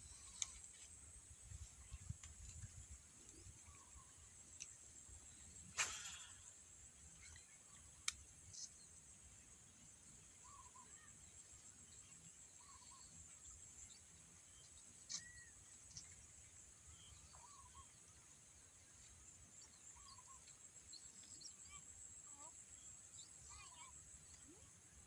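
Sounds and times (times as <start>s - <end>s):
bird chirps: 10.4s - 16.2s, 16.9s - 18.0s, 19.6s - 24.6s.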